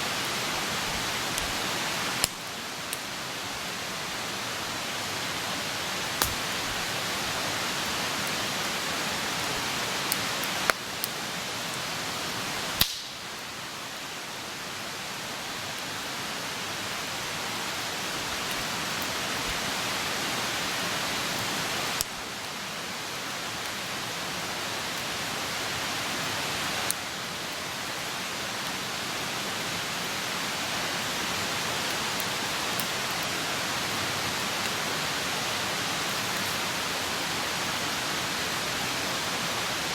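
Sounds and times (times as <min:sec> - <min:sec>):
campfire hissing: 0:00.0 - 0:39.9
burning wood popping and crackling: 0:02.2 - 0:03.1, 0:06.2 - 0:06.9, 0:12.8 - 0:13.2.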